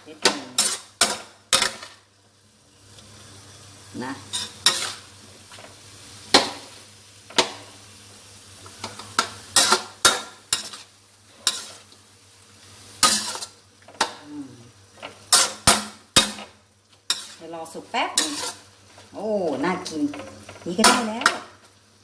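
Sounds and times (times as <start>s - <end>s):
food sizzling in a pan: 0.0s - 22.0s
spatula scraping a pan: 0.2s - 2.0s, 4.2s - 5.8s, 8.7s - 12.0s, 13.0s - 14.2s, 14.9s - 19.1s.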